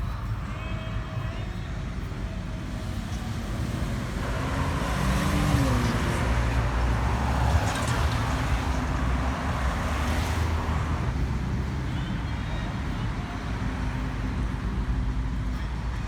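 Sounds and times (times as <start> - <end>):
car engine running: 2.5 - 12.0.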